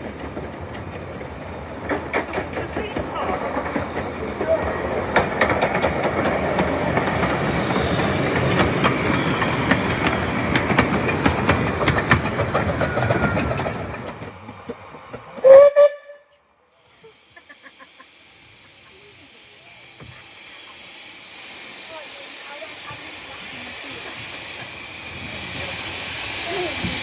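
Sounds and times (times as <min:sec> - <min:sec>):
rail joint clicks: 0:00.0 - 0:16.0
miniature train rumbling on rails: 0:00.0 - 0:27.0
train whistle toot: 0:15.4 - 0:16.4.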